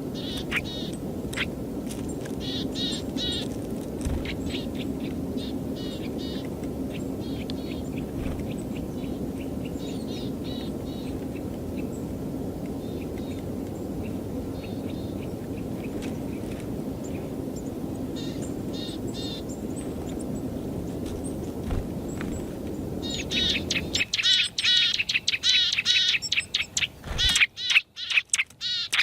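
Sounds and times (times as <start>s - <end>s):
low background rumble: 0.0s - 27.4s
high chirping bird calls: 0.2s - 1.5s, 23.0s - 29.0s.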